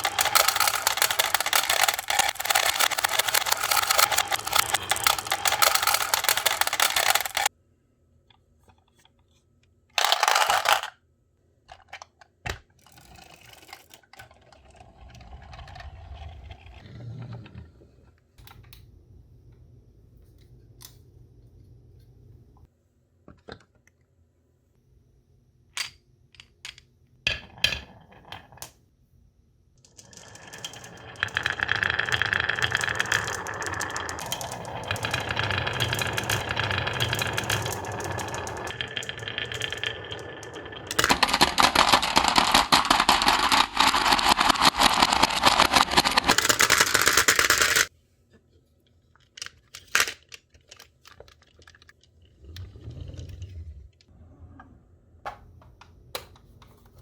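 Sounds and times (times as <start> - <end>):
marble clicks: 0.0 - 7.5, 29.9 - 47.9
marbles rolling rumble: 0.0 - 7.5, 10.0 - 10.9, 12.8 - 17.6, 27.4 - 28.7, 29.8 - 47.9.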